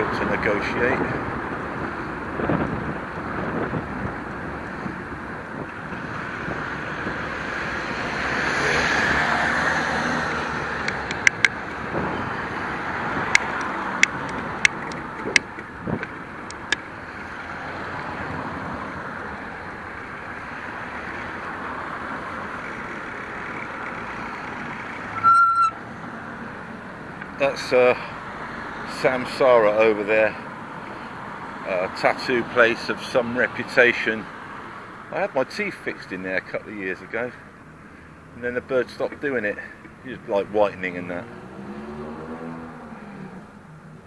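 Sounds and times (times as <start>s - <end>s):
vehicle passing: 0.0s - 33.8s, 36.7s - 43.8s
road traffic noise: 0.0s - 44.0s
sharp clicks: 10.8s - 11.8s, 13.3s - 16.8s.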